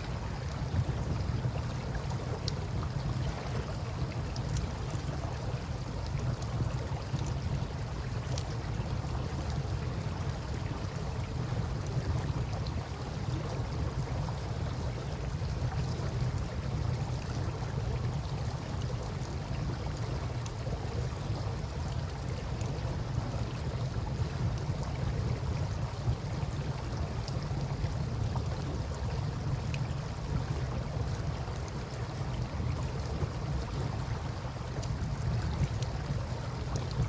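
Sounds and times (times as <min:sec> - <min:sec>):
campfire crackling: 0:14.6 - 0:37.0.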